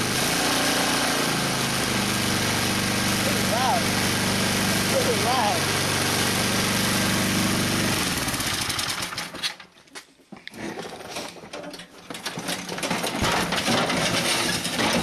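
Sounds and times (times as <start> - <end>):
snowblower engine running: 0.0 - 9.4.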